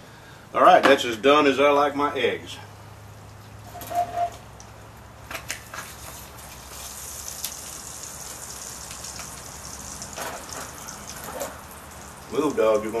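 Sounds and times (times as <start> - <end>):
eggs sizzling in a skillet: 6.0 - 13.0.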